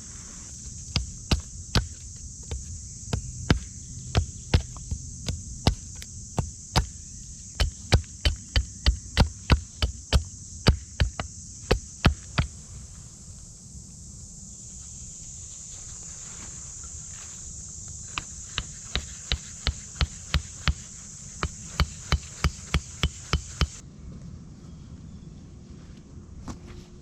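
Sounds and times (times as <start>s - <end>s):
steady high hiss: 0.0s - 3.9s
sharp short knocks: 18.1s - 23.8s.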